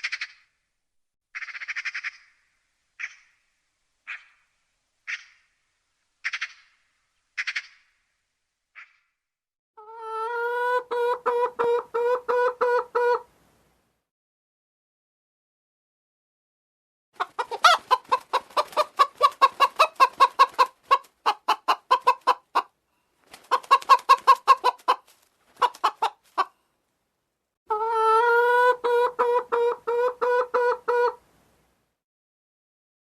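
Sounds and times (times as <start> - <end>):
poultry calling: 17.2 - 22.7.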